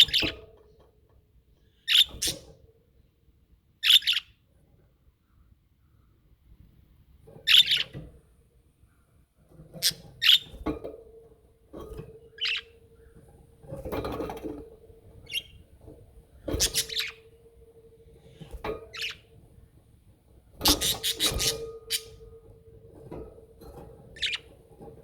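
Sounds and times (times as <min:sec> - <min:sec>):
budgerigars chirping: 0:00.0 - 0:00.4, 0:01.8 - 0:02.5, 0:03.8 - 0:04.4, 0:07.5 - 0:08.0, 0:09.8 - 0:10.6, 0:12.4 - 0:13.2, 0:15.2 - 0:15.7, 0:16.5 - 0:17.4, 0:18.2 - 0:19.3, 0:20.6 - 0:22.3, 0:24.2 - 0:24.5.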